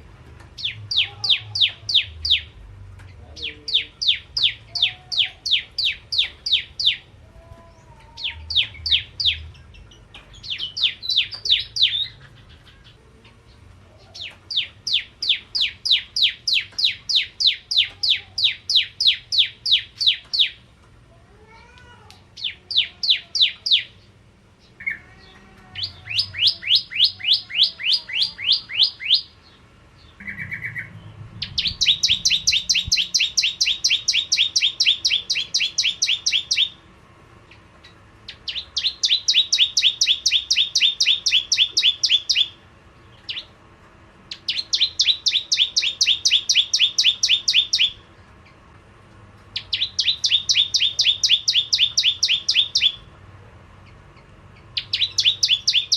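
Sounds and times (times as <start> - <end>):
bird singing rattling notes: 8.3 - 12.8, 26.1 - 36.8, 49.6 - 53.0, 54.6 - 55.9.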